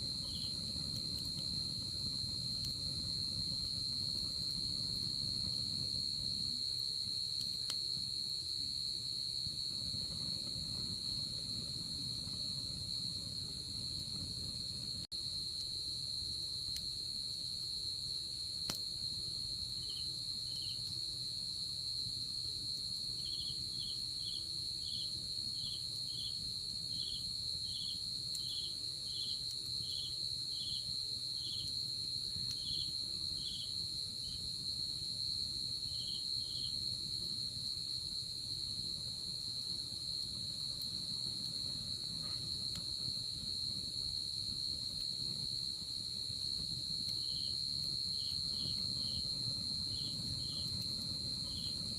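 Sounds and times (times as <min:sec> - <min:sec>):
campfire popping: 0:00.0 - 0:15.4, 0:25.4 - 0:34.4, 0:35.8 - 0:51.9
campfire hissing: 0:00.0 - 0:51.9
crickets trilling: 0:00.0 - 0:51.9
lower insect chirp: 0:00.0 - 0:51.9.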